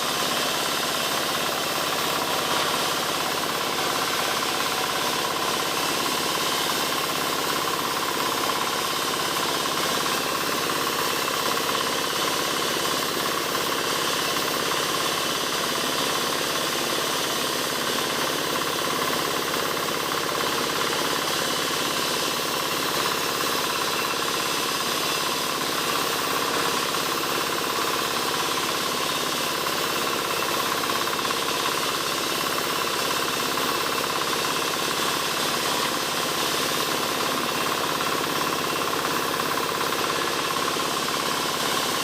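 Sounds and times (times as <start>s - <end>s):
powered saw running: 0.0s - 42.0s.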